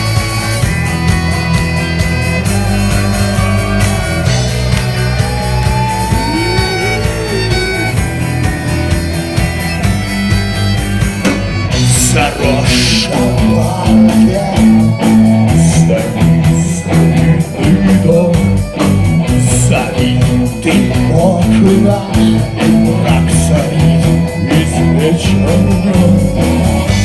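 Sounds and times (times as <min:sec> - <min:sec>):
bending guitar melody: 0:00.0 - 0:27.0
drums keeping a steady beat: 0:00.0 - 0:27.0
guitars: 0:00.0 - 0:27.0.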